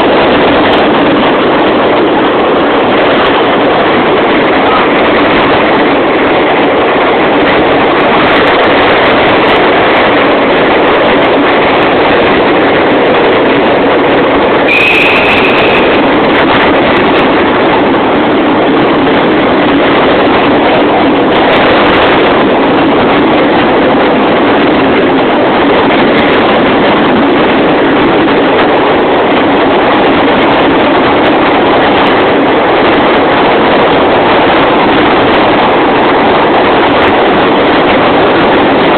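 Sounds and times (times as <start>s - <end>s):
train running through tunnel: 0.0s - 38.9s
high squeal: 14.7s - 16.1s.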